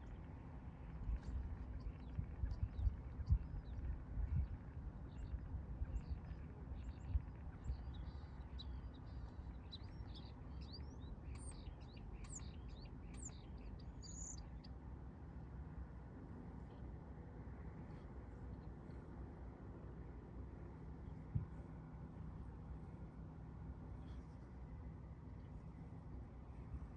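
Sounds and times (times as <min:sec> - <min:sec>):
small birds chirping: 0:00.0 - 0:15.3
steady low rumble: 0:00.0 - 0:26.9.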